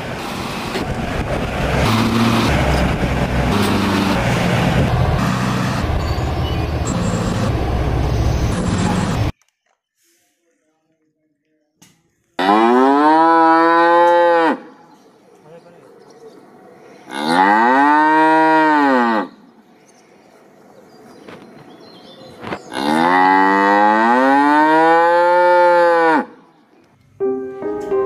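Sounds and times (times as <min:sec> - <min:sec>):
cow mooing: 0:12.4 - 0:14.7, 0:17.1 - 0:19.4, 0:22.7 - 0:26.3.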